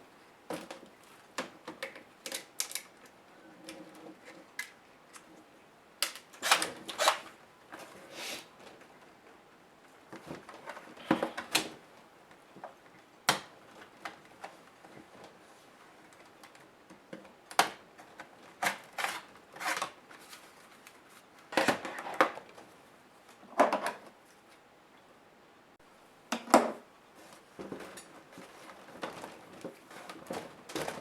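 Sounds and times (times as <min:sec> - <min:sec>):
plastic parts clicking: 0:01.4 - 0:03.1, 0:06.0 - 0:07.2.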